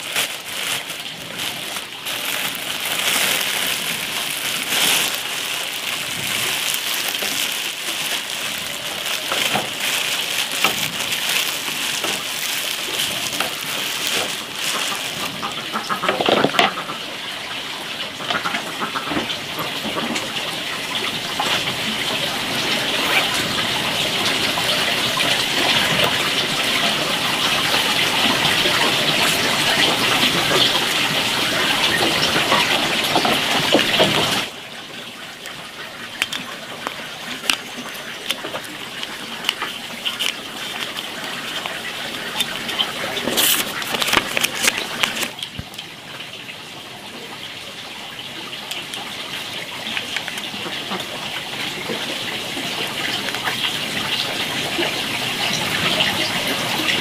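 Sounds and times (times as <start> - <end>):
plastic bag rustling: 0.0 - 16.8, 24.6 - 45.8
rain hissing: 0.0 - 18.2, 19.4 - 46.3.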